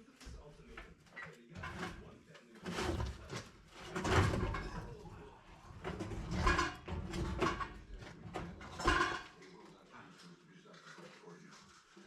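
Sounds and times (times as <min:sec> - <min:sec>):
knocks and scraping: 0:00.2 - 0:09.6.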